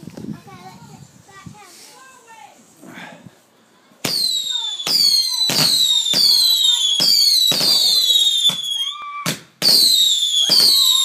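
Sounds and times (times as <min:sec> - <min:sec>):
whistling fireworks: 0:04.0 - 0:11.0.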